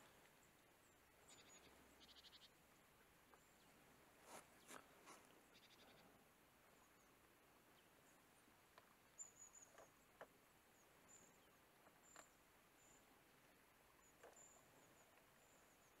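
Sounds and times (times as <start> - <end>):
soft ticks: 8.7 - 10.4, 11.8 - 12.4.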